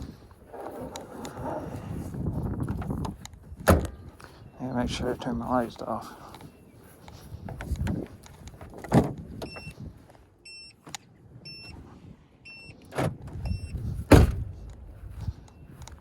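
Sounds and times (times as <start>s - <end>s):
car warning chime beeps: 9.4s - 9.8s, 10.4s - 10.8s, 11.4s - 11.8s, 12.4s - 12.9s, 13.5s - 13.8s.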